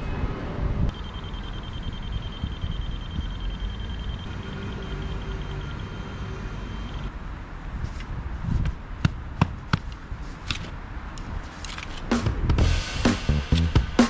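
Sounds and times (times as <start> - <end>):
faint high pulsing beep: 0.9 - 7.1.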